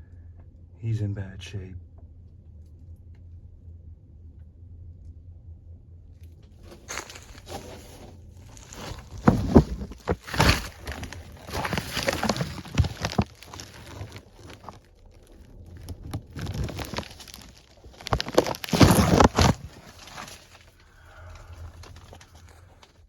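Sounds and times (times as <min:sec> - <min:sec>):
person crawling knocks and scuffs: 0:06.6 - 0:22.6.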